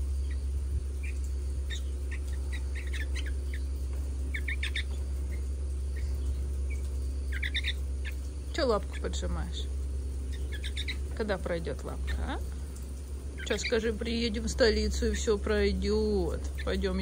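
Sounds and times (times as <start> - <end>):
low steady hum: 0.0 - 17.0
young birds chirping: 0.0 - 17.0.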